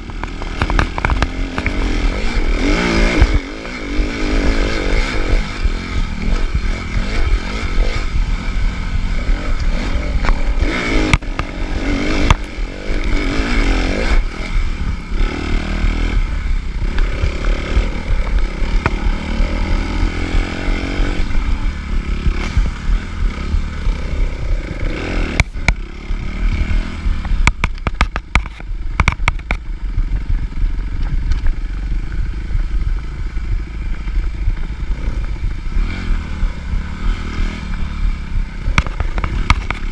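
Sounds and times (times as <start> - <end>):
motocross engine revving: 0.0 - 39.9
sharp clattering knocks: 27.2 - 29.7.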